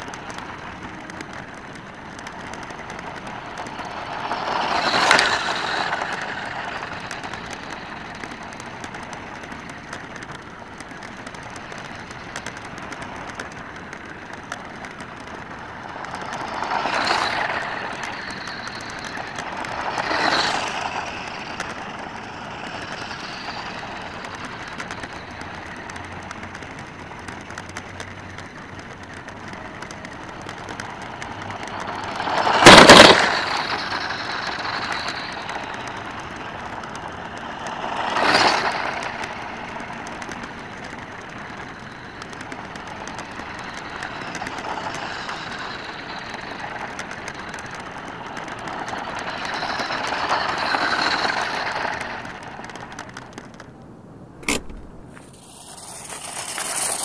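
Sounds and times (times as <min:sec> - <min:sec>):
electric motor and gears whining: 0:00.0 - 0:46.9, 0:54.4 - 0:57.0
tyres crunching on gravel: 0:54.4 - 0:57.0.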